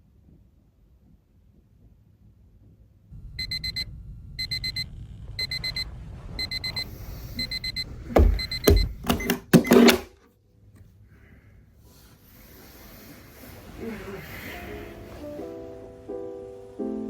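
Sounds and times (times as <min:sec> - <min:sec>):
electronic alarm beeping: 0:03.4 - 0:10.1
loud thumps and handling noise: 0:08.0 - 0:10.2.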